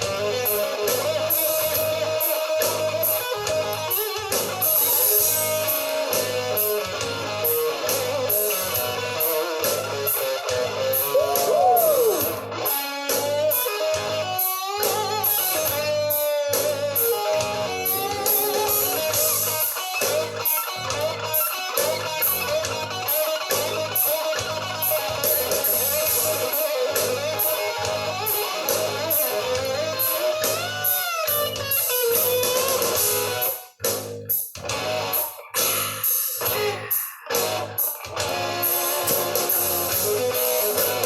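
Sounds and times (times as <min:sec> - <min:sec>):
bass: 0:00.0 - 0:41.0
electric guitar lead: 0:00.0 - 0:41.0
drum beat: 0:08.0 - 0:12.5, 0:24.9 - 0:41.0.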